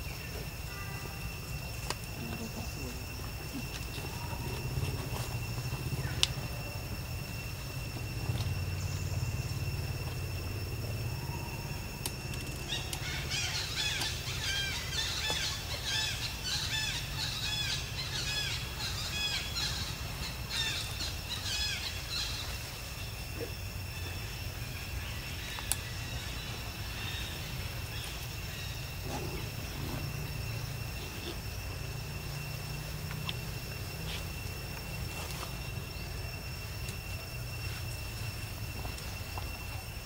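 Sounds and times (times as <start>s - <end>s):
low outdoor rumble: 0.0s - 40.0s
small birds chirping: 12.0s - 38.0s.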